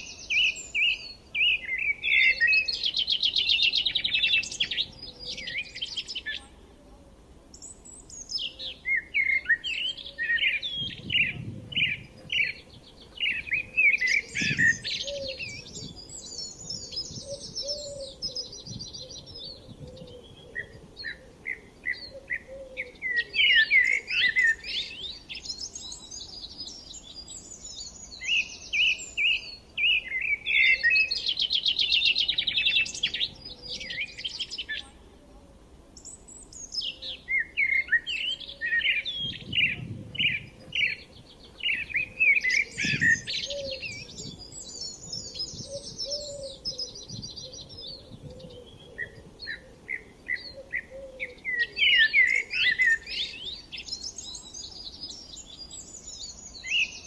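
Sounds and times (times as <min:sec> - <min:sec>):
songbirds singing: 0:00.0 - 0:57.0.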